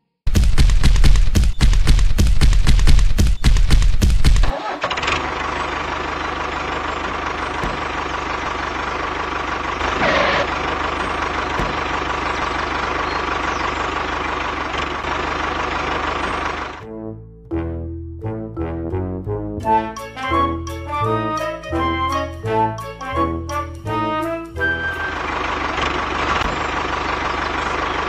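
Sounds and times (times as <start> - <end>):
small engine running: 0.3 - 16.8, 23.9 - 28.0.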